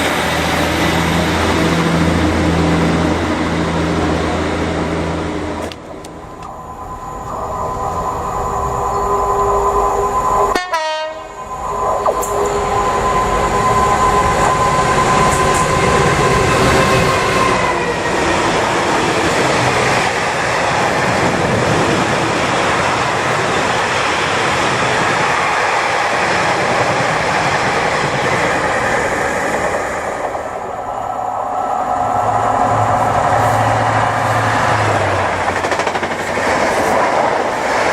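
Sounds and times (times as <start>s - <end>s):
wheels rushing on rails: 0.0s - 37.9s
train horn chord: 10.5s - 11.4s.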